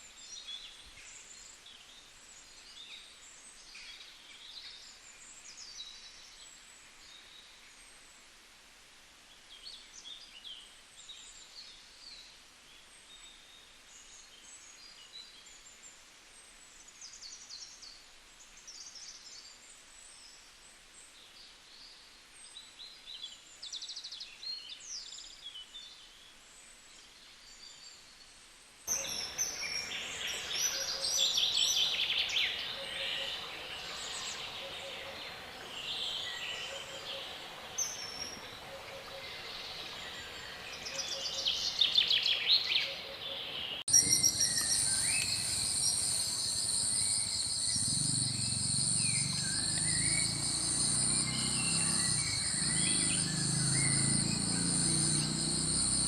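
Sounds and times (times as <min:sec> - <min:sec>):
birds chirping and calling: 0:28.9 - 0:56.0.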